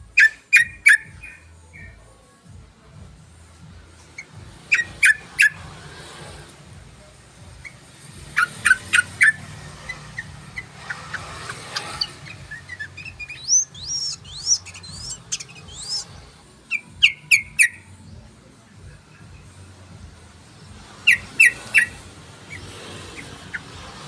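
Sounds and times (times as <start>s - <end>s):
bird chirping: 0.1s - 2.0s, 4.0s - 6.2s, 7.5s - 18.4s, 20.8s - 24.0s
bird whistled phrases: 11.8s - 17.8s, 21.0s - 23.7s.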